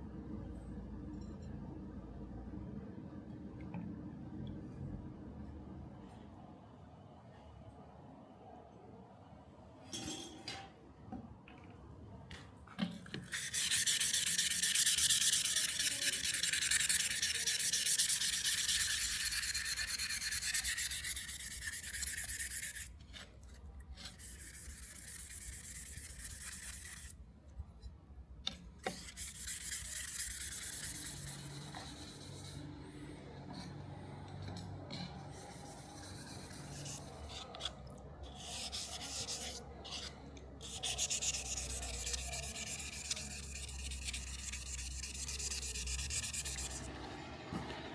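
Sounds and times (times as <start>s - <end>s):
abrasive sanding of metal: 13.3s - 22.9s, 24.0s - 27.1s, 29.0s - 32.6s, 40.6s - 46.9s.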